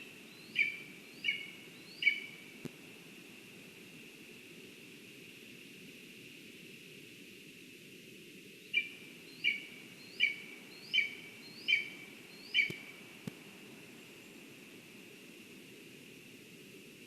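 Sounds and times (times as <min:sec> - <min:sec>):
steady hiss: 0:00.0 - 0:17.0
woodpecker calling: 0:00.4 - 0:02.4, 0:08.7 - 0:13.0.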